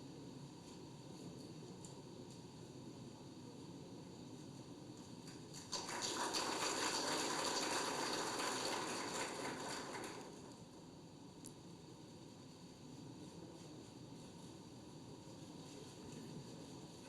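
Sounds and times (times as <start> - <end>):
audience applause: 5.6 - 10.6.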